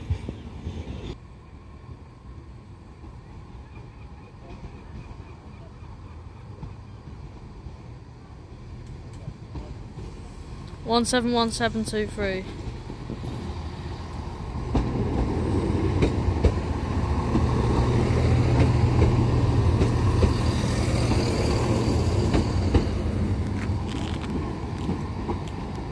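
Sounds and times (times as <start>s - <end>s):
diesel train engines droning: 0.0s - 25.9s
wheels clicking over rail joints: 14.1s - 25.9s.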